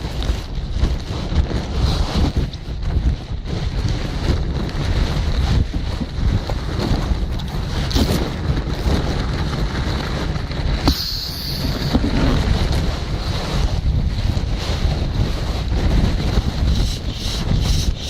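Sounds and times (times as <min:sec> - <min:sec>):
wind buffeting microphone: 0:00.0 - 0:18.0
brief higher hiss: 0:10.9 - 0:12.0.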